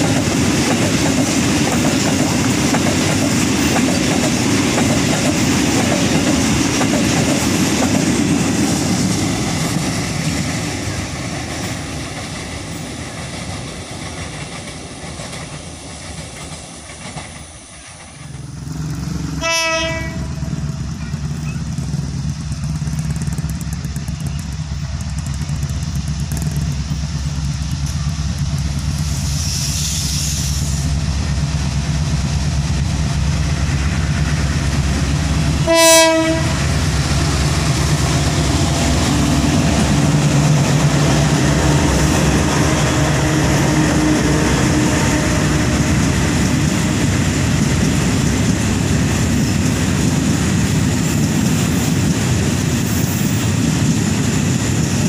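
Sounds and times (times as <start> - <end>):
diesel locomotive engine drone: 0.0 - 55.0
receding freight train: 0.0 - 55.0
train wheels on rails: 0.0 - 55.0
train horn blasts: 19.4 - 20.6, 35.6 - 36.7, 42.3 - 46.0.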